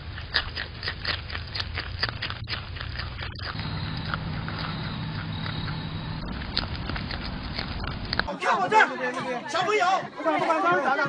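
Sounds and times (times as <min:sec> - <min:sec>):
animal crunching food: 0:00.0 - 0:08.3
low hum and hiss: 0:03.5 - 0:08.3.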